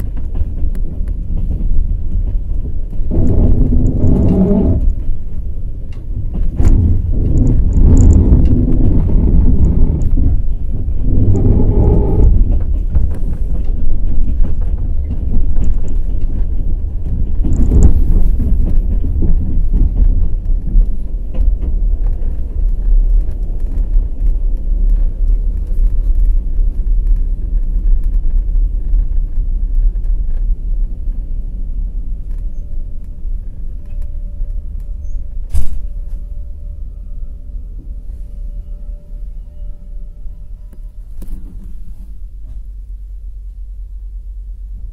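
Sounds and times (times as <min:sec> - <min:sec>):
wheels clicking over rail joints: 0:00.0 - 0:36.0
train wheels rumbling: 0:00.0 - 0:44.9.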